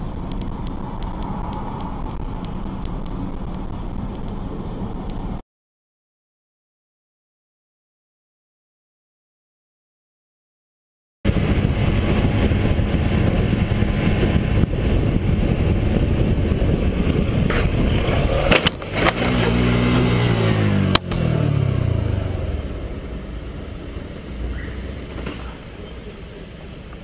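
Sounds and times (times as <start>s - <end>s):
road and wind noise: 0.0s - 5.4s, 11.3s - 27.0s
vehicle engine running: 11.3s - 27.0s.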